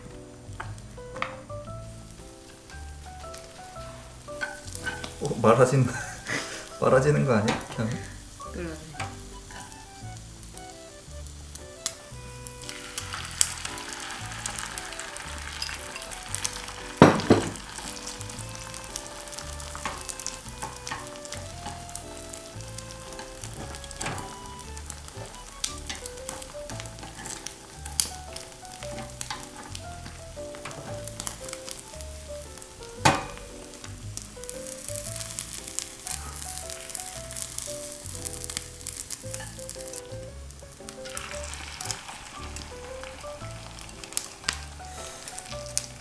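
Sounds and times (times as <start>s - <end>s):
egg sizzling in a frying pan: 0.0s - 46.0s
light background music: 0.0s - 46.0s
utensil knocking against pan: 16.9s - 17.8s, 19.8s - 21.8s, 33.0s - 33.6s.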